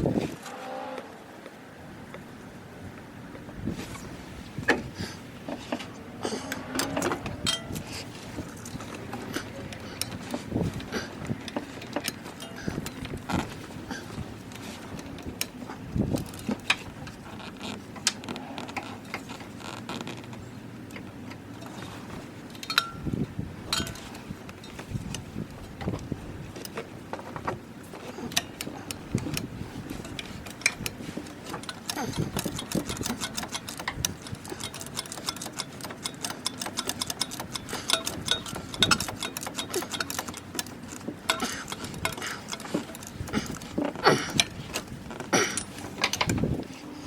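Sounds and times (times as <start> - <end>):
rapid mechanical clicks and clinks: 28.0 - 46.6.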